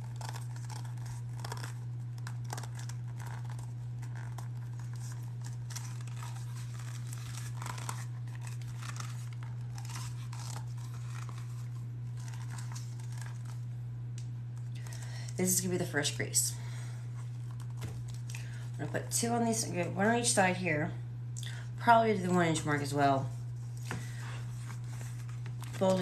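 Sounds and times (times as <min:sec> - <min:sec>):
leather rustling and scraping: 0:00.0 - 0:13.6
steady low hum: 0:00.0 - 0:26.0.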